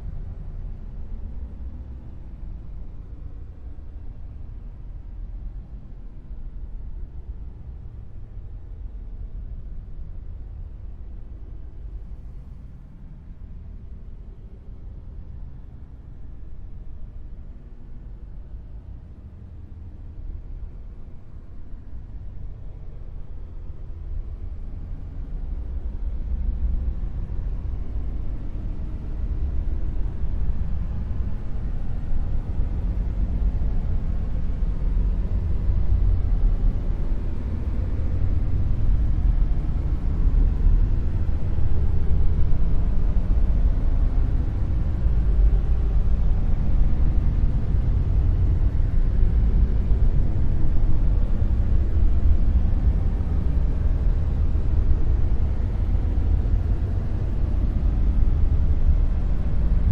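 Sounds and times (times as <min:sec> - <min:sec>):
deep rumbling noise: 0:20.5 - 0:59.9.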